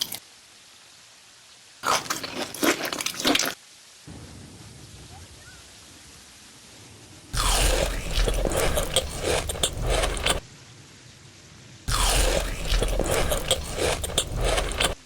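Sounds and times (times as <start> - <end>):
faint hiss: 0.0 - 2.2, 2.9 - 13.7
crunching and chewing food: 1.8 - 3.6, 7.4 - 10.5, 11.9 - 15.0.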